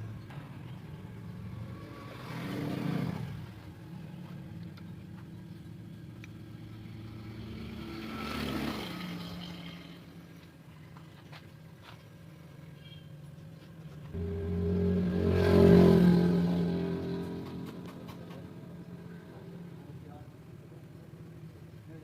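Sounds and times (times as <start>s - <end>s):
vehicles passing: 0.0s - 22.0s
low engine hum: 13.7s - 22.0s.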